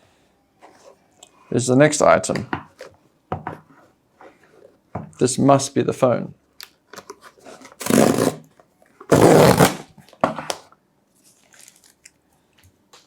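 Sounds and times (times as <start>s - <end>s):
faint package handling: 11.1s - 12.8s
packaging tearing and rustling: 11.2s - 12.1s.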